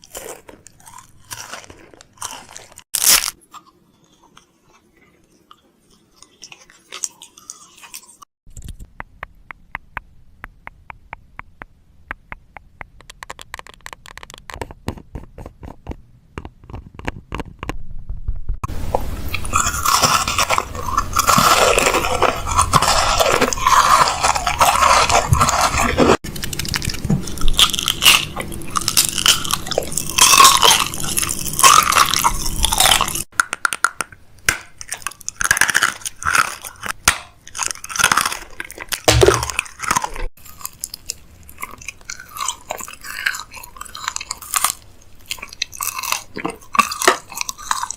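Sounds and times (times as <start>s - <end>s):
dense crunching and crackling: 0.0s - 3.7s, 19.3s - 33.3s, 34.8s - 47.9s.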